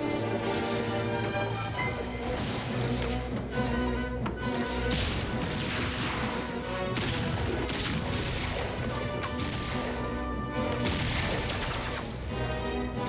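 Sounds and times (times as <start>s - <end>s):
gunshots: 0.0s - 1.6s, 2.2s - 3.4s, 4.4s - 13.0s
orchestral film score: 0.0s - 13.0s.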